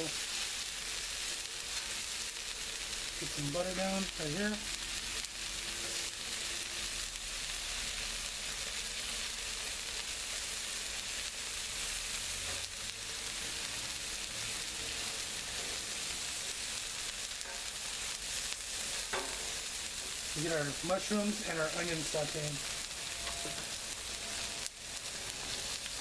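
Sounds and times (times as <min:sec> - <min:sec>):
burgers sizzling on a griddle: 0:00.0 - 0:26.0.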